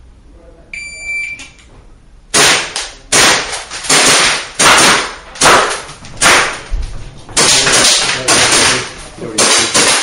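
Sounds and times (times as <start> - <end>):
pistol shots ringing in room: 2.3 - 6.7, 7.4 - 10.0.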